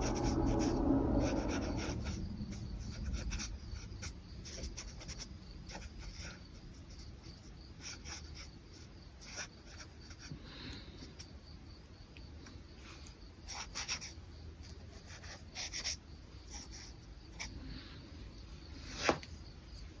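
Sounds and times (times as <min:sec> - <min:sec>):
brush pen scratching on paper: 0:00.0 - 0:08.6, 0:14.9 - 0:17.5.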